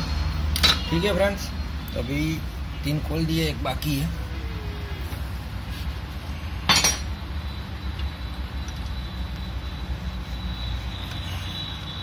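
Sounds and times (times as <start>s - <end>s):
spanner clinking on metal: 6.7s - 7.1s.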